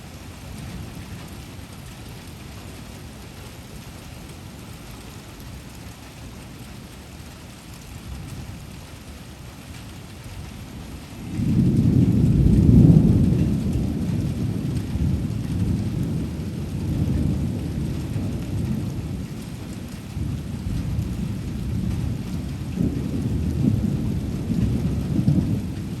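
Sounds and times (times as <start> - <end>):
rain falling: 0.0 - 26.0
thunder rumbling: 11.2 - 26.0.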